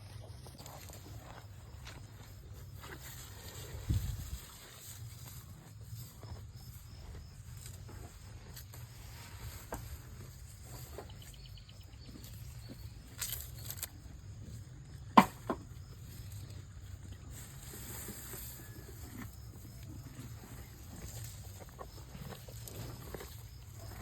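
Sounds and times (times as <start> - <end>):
faint ticks and rustles: 0.4 - 14.6.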